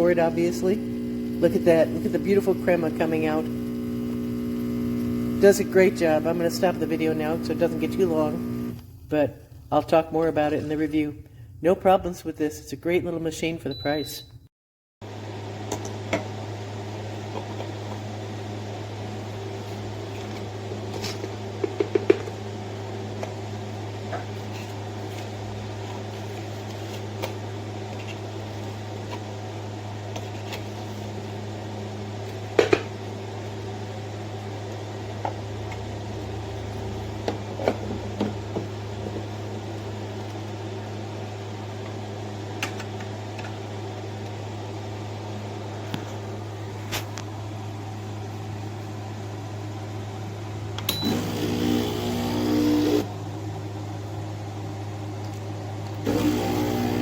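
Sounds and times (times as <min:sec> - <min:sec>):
espresso machine pump humming: 0:00.0 - 0:08.8, 0:50.9 - 0:53.1, 0:56.0 - 0:57.0.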